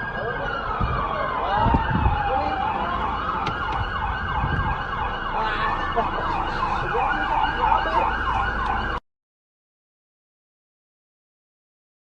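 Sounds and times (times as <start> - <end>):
emergency siren yelping: 0.0 - 9.0
traffic rumble: 0.0 - 9.0.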